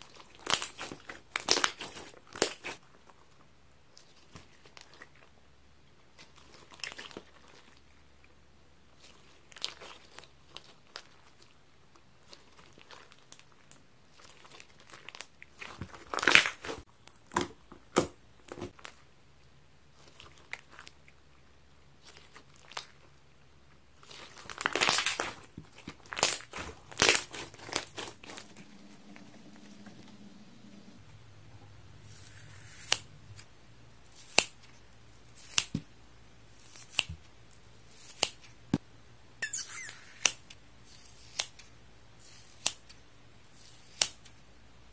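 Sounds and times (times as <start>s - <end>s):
hands crumpling sponge: 24.0s - 29.7s.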